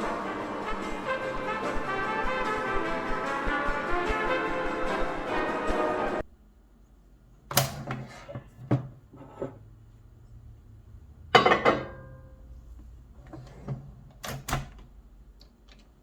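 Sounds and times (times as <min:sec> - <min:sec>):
background music: 0:00.0 - 0:06.3
low steady hum: 0:06.2 - 0:16.0
microwave oven clunks and clicks: 0:13.7 - 0:14.9.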